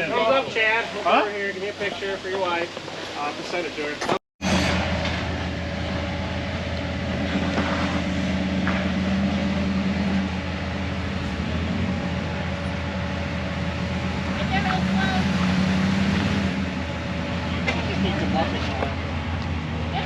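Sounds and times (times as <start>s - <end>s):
vehicle engine running at low revs: 4.4s - 20.0s.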